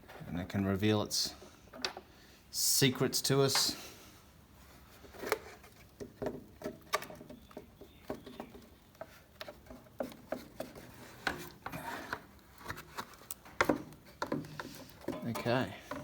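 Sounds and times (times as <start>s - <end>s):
parts clicking and knocking: 1.3s - 2.1s, 5.0s - 16.0s.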